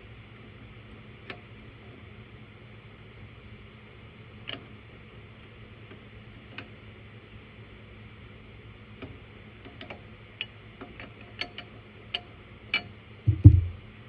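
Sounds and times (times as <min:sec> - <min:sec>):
heavy thumps: 0:13.3 - 0:13.9.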